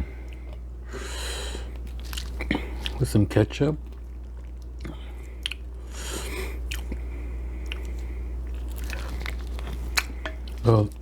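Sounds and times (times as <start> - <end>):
steady low hum: 0.0 - 11.0
person chewing: 1.6 - 3.0, 3.8 - 10.7
wet smacking mouth noise: 4.6 - 5.7.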